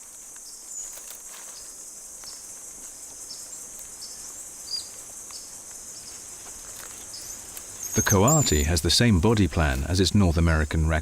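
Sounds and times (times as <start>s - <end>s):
insects droning: 0.0s - 11.0s
bird chirps: 7.0s - 9.1s.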